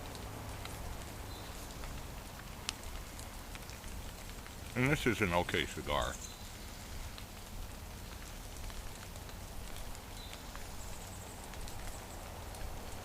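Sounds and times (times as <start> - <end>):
faint drip ticks: 0.0 - 13.0
light rain pattering: 0.0 - 13.0.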